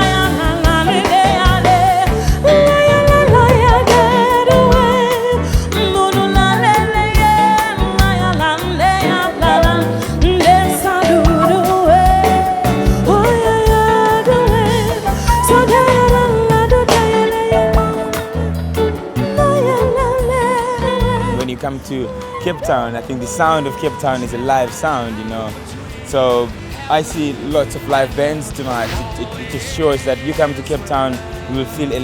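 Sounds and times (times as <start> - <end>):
band music with bass beat: 0.0 - 32.0.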